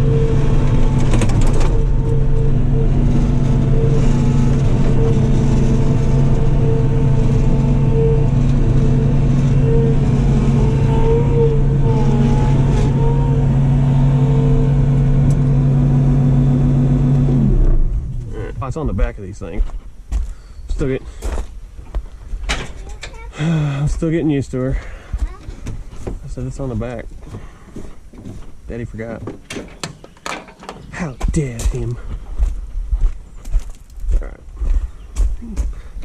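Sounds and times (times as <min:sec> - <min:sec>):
engine winding down: 0:00.0 - 0:19.1
diesel engine running: 0:00.0 - 0:19.7.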